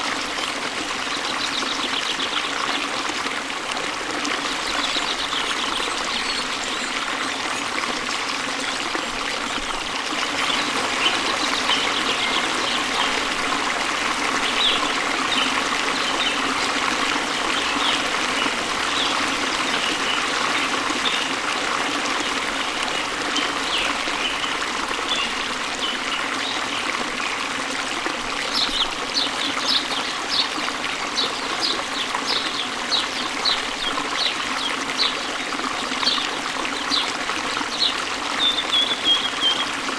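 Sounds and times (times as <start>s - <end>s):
stream water babbling: 0.0s - 39.9s
small birds chirping: 37.7s - 39.8s.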